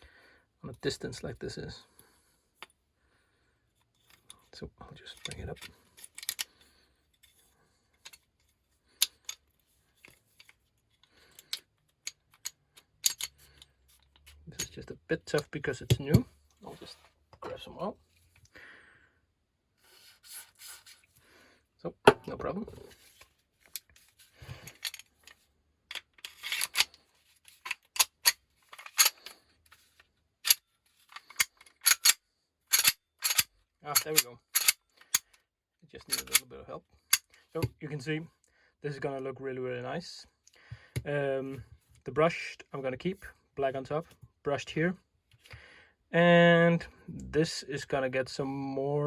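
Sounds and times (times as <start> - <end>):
parts scraping: 3.8 - 18.5, 21.8 - 35.3
toy pistol parts clicking: 31.2 - 35.3.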